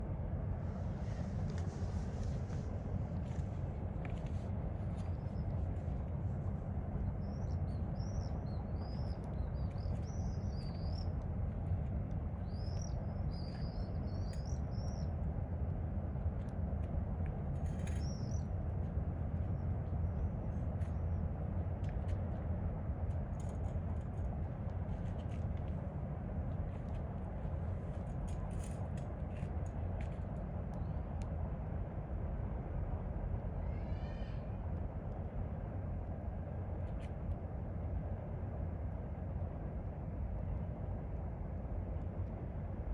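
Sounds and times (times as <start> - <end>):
steady low rumble: 0.0 - 42.9
small songbird chirping: 7.0 - 11.2, 12.4 - 15.2, 17.9 - 18.5.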